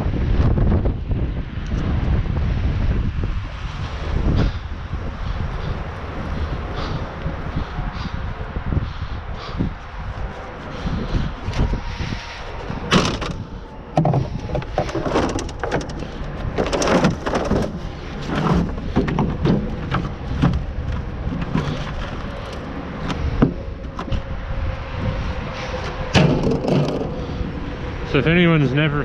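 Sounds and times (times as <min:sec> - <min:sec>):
wind on microphone: 0:00.0 - 0:29.0
scrap clattering in a dumpster: 0:14.0 - 0:24.2, 0:25.7 - 0:27.4.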